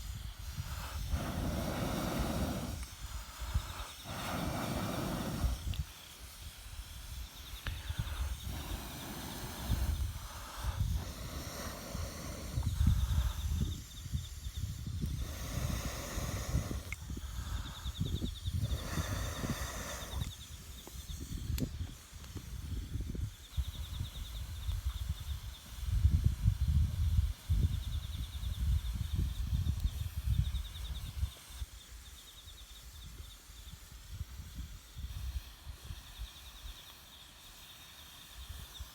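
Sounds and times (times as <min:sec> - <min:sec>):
fire flaring: 0:00.0 - 0:30.1
breath blown through pipe: 0:00.4 - 0:05.9, 0:07.5 - 0:20.5.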